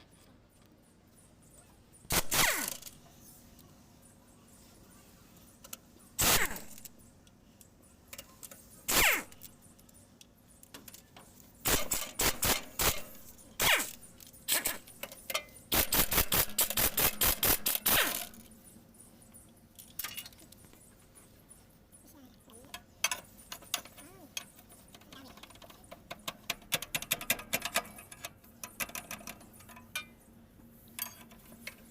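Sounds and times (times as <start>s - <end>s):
metal tools clinking: 22.6s - 30.2s, 30.9s - 31.9s.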